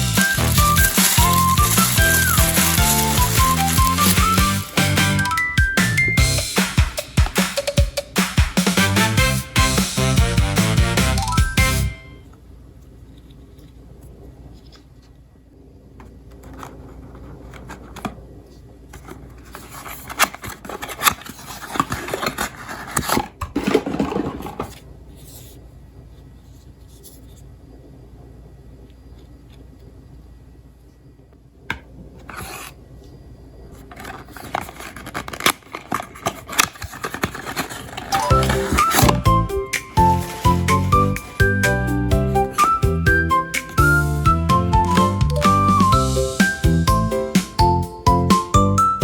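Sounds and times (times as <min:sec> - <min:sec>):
marbles rolling on wooden track: 0:00.0 - 0:06.0.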